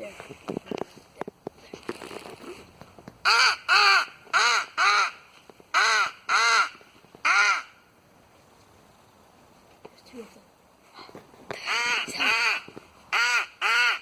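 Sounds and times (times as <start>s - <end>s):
crow call caws: 3.2s - 5.2s, 5.8s - 7.8s, 11.6s - 14.0s.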